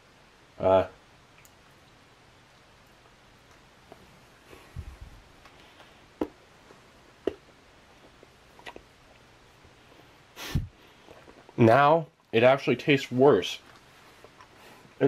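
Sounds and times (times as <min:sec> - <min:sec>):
man chewing: 0:02.8 - 0:12.3, 0:13.6 - 0:15.0
wet mouth clicks: 0:07.2 - 0:08.9.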